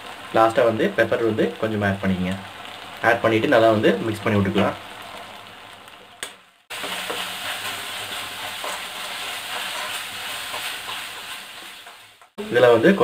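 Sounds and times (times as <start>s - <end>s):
food sizzling in hot oil: 0.0s - 13.0s
metal spoon stirring: 6.8s - 12.1s.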